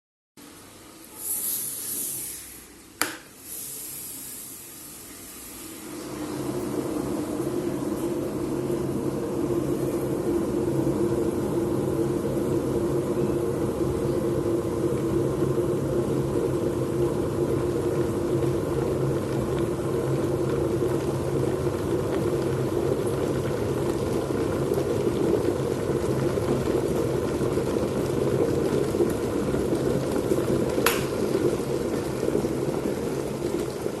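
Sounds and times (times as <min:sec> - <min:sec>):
electric kettle heating water: 0:00.4 - 0:34.0
kettle click: 0:03.0 - 0:03.3.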